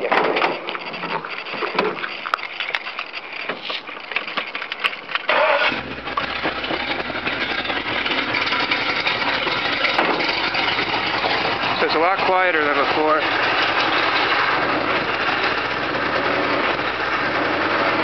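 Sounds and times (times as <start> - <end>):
clicks and knocks: 0.0 - 5.3
car engine starting and idling: 5.2 - 18.0.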